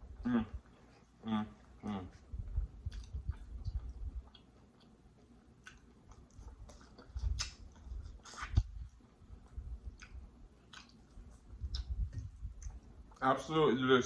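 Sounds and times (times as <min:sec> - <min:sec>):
person chewing: 0:01.8 - 0:13.2
wet mouth clicks: 0:02.8 - 0:05.0, 0:05.6 - 0:08.9, 0:09.5 - 0:13.2.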